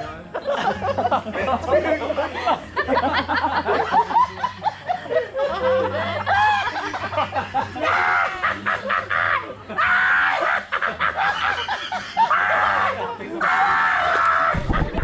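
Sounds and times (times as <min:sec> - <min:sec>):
people chuckling: 0:00.0 - 0:15.0
person laughing evilly: 0:02.0 - 0:13.1.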